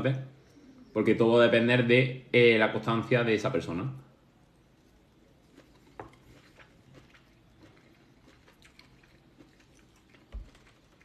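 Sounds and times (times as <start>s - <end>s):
faint chewing: 4.5s - 11.0s.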